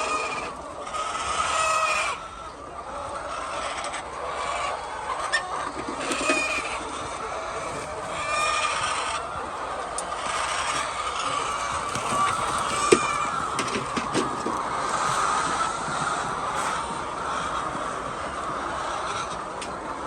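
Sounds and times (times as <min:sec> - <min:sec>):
short chicken calls: 0:00.0 - 0:19.8
chickens clucking: 0:00.0 - 0:20.0.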